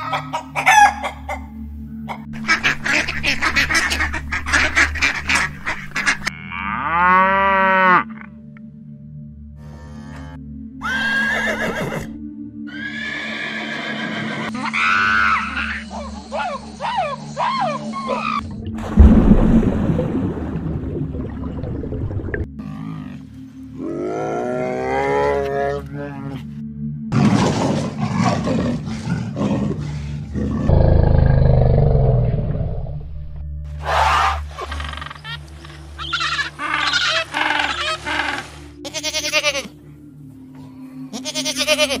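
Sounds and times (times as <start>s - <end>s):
background music: 0.0s - 42.0s
horse neighing: 10.8s - 12.1s, 12.7s - 14.8s
leopard growl: 27.1s - 33.0s.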